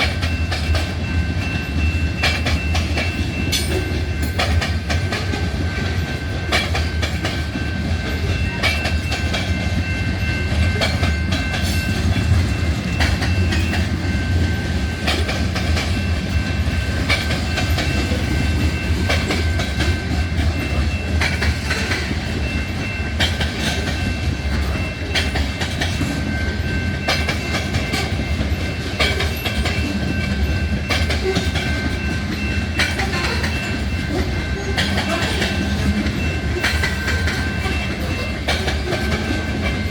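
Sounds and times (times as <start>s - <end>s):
freight train rumbling: 0.0s - 39.9s
wheels clicking over rail joints: 0.0s - 39.9s.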